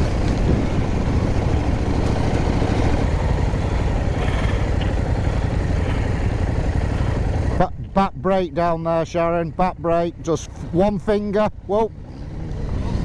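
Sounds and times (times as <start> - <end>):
low rumble on microphone: 0.0 - 8.0
motorcycle engine running: 0.0 - 13.0.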